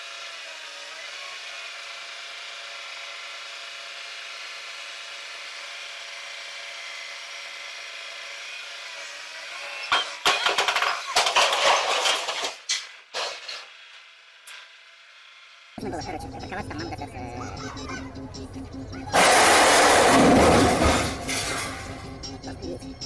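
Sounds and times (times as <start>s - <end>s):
machine engine running: 13.8s - 23.0s
loud harsh noise: 19.1s - 22.3s.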